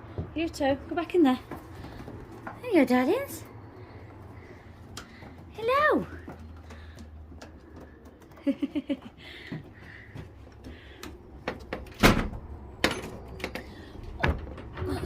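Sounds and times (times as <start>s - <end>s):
door rattling: 11.4s - 15.0s.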